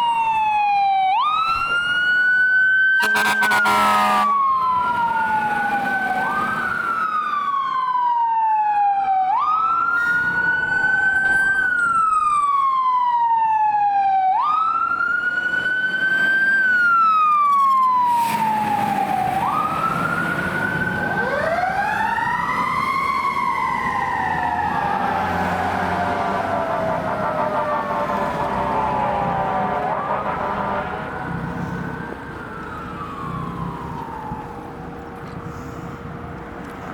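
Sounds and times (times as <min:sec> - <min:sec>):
second siren sweeping: 0:00.0 - 0:36.1
fire engine siren wailing: 0:00.0 - 0:36.9.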